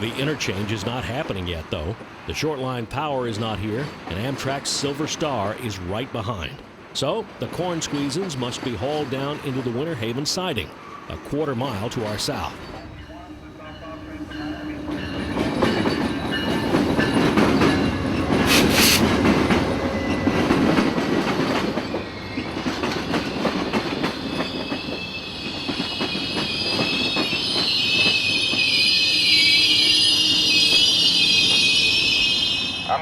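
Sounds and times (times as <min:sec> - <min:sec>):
train wheels clicking over rail joints: 0:14.8 - 0:28.7
high wavering wheel squeal: 0:24.2 - 0:33.0.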